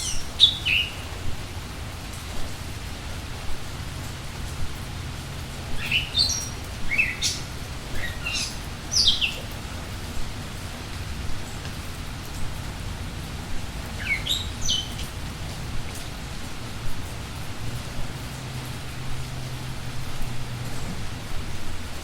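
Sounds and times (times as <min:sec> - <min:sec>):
songbirds chirping: 0:00.0 - 0:21.3
steady rain falling: 0:00.0 - 0:22.0.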